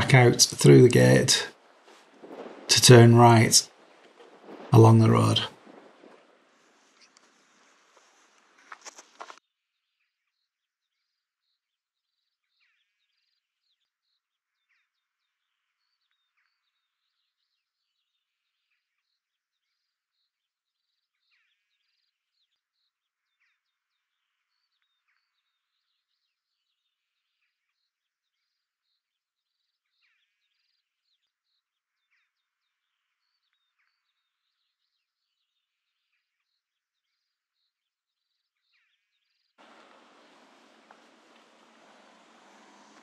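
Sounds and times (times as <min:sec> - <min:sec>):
songbirds chirping and trilling: 0:00.0 - 0:08.7, 0:32.4 - 0:43.0.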